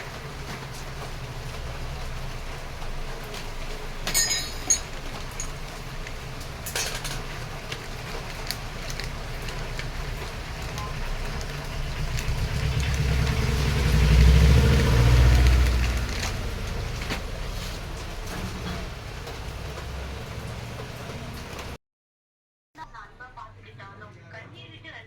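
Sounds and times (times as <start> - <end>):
vehicle passing by: 10.2 - 21.8.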